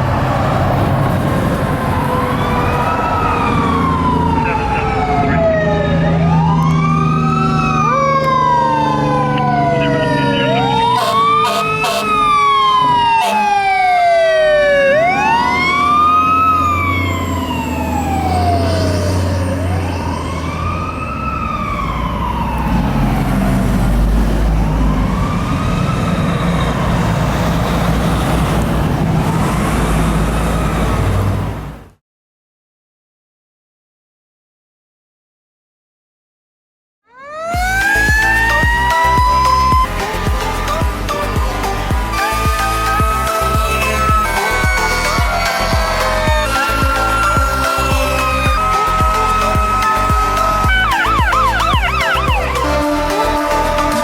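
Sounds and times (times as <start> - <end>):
falling siren tones: 0.0 - 31.2, 37.1 - 54.0
fire engine siren wailing: 0.0 - 31.6, 37.1 - 54.0
low truck engine rumble: 37.6 - 54.0.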